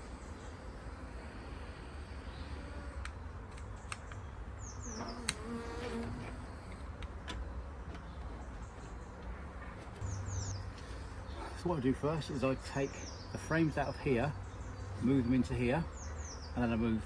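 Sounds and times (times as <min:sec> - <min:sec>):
honeybees buzzing: 0:00.0 - 0:03.5, 0:04.5 - 0:07.0.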